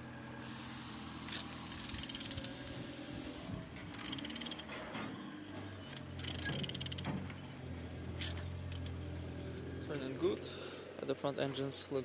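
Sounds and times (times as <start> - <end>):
ratchet wrench clicking: 1.3 - 2.6, 3.9 - 4.7, 5.9 - 7.1, 8.2 - 9.0.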